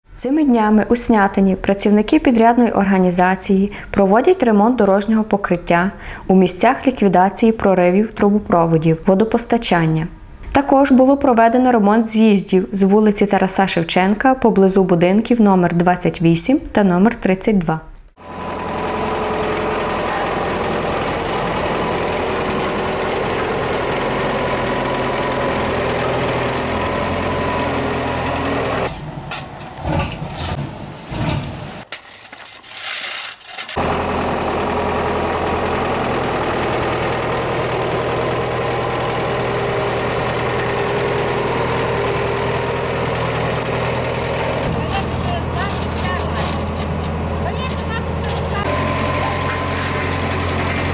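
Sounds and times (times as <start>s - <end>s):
road-repair machinery engine running: 5.1s - 7.6s, 18.2s - 31.9s, 33.3s - 50.9s.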